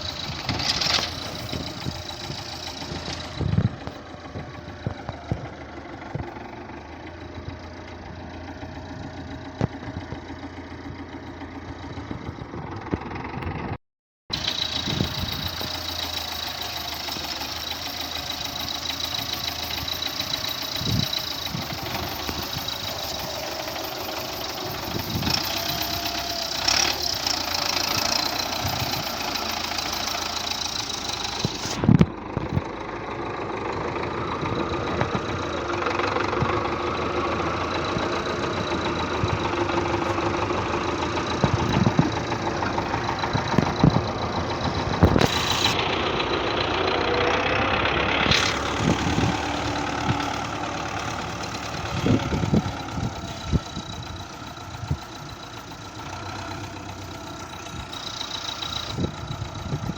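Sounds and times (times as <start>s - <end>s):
clunks: 0.0s - 13.6s, 14.3s - 45.8s, 48.2s - 59.9s
tractor diesel engine running: 0.0s - 59.9s.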